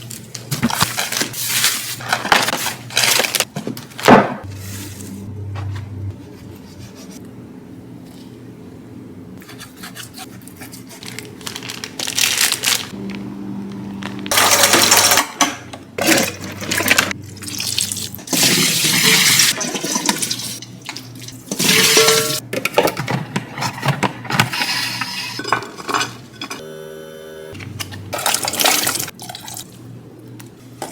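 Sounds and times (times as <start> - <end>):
containers and packaging handled: 0.0 - 5.8, 10.3 - 13.2.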